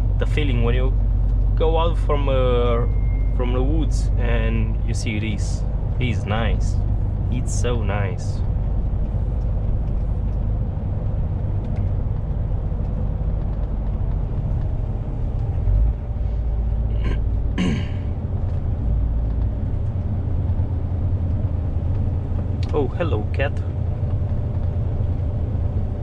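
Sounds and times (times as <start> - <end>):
lorry engine rumble: 0.0 - 26.0
road noise: 0.0 - 26.0
person throat sound: 16.9 - 18.1.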